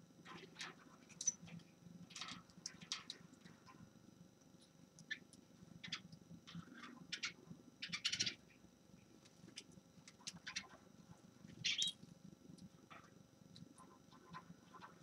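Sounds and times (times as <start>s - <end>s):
finch chirping: 11.6s - 12.0s.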